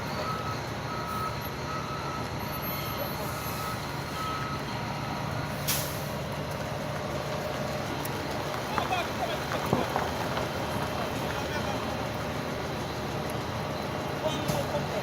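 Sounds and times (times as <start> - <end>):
reversing alarm beeping: 0.0 - 5.4
diesel engine running: 0.0 - 15.0.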